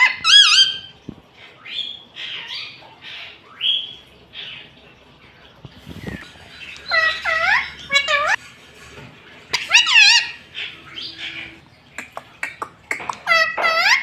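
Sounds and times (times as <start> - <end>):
parakeet warbling calls: 0.0 - 0.9, 6.5 - 8.4, 9.5 - 11.6, 12.4 - 14.0
parakeet chirping: 6.0 - 8.4, 9.5 - 14.0.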